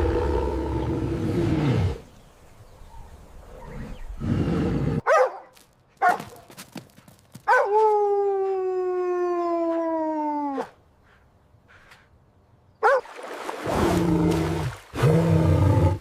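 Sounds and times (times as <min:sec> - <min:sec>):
low rough roar: 0:00.0 - 0:02.0.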